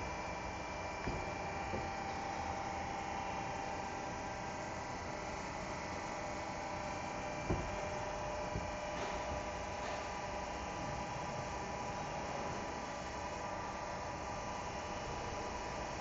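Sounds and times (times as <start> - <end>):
lathe machine hum: 0.0 - 16.0
short knock: 7.4 - 7.9.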